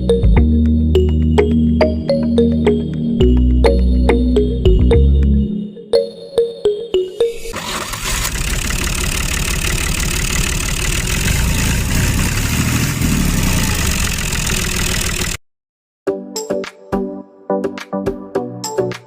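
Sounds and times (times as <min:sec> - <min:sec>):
motor running with grinding pulse: 0:08.2 - 0:15.4.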